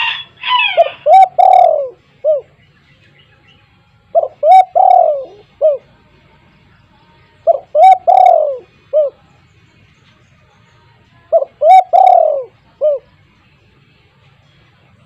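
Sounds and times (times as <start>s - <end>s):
dove cooing: 0.0s - 2.6s, 4.1s - 5.9s, 7.4s - 9.2s, 11.3s - 13.1s.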